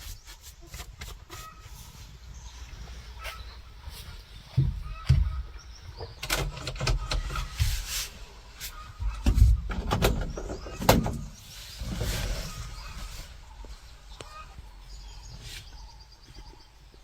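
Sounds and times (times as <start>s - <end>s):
low thumps: 4.5s - 6.1s
metal clunks and knocks: 4.5s - 7.8s, 9.0s - 11.4s.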